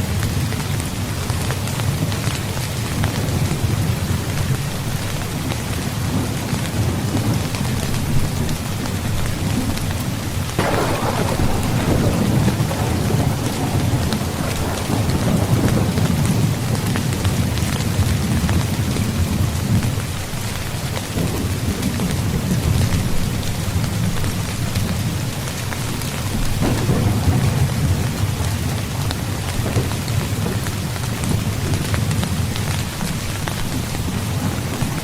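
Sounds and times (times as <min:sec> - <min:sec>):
heavy rain: 0:00.0 - 0:35.0
low rumbling thunder: 0:10.5 - 0:20.1, 0:26.0 - 0:35.0
thunderclap: 0:10.6 - 0:20.0, 0:26.0 - 0:35.0.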